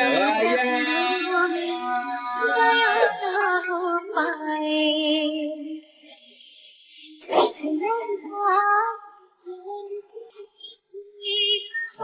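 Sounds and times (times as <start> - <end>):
high voice singing long notes: 0.0 - 6.0.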